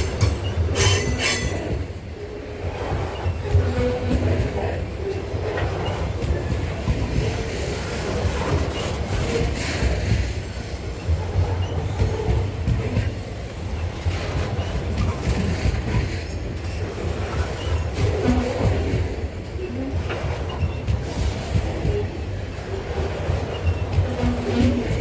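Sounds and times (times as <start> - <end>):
wheels clacking over rails: 0.0 - 1.9
freight train rumble: 0.0 - 25.0.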